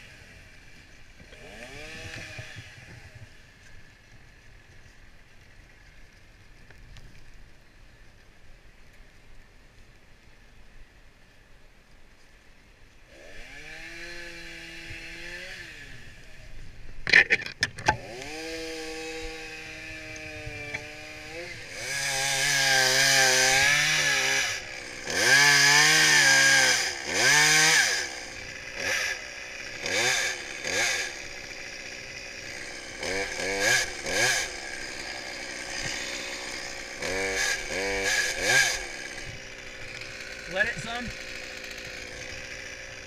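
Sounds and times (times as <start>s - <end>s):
chainsaw engine revving: 0.0s - 3.5s, 13.1s - 16.4s, 17.1s - 43.0s.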